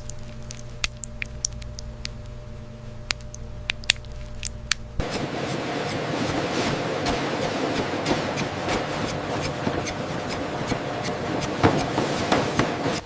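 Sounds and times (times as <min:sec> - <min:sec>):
low machine hum: 0:00.0 - 0:13.0
dense rushing hiss: 0:05.0 - 0:13.0.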